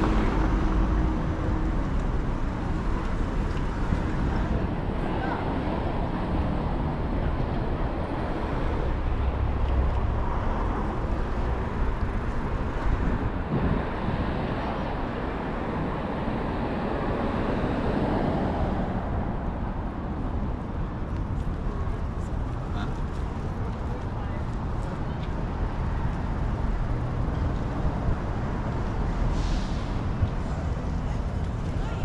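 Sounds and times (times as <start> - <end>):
vehicles passing: 0.0 - 32.0.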